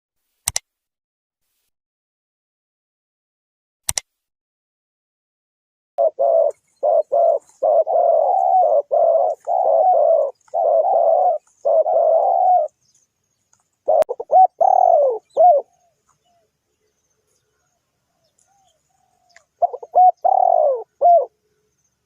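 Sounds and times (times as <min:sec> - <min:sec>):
sharp click: 0:00.4 - 0:00.7, 0:03.9 - 0:04.1
dove cooing: 0:06.0 - 0:13.0, 0:13.8 - 0:21.7.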